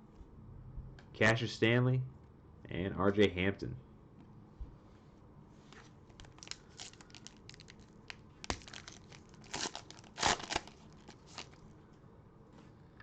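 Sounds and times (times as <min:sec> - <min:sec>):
cellophane wrapper crinkling: 0:06.1 - 0:11.7.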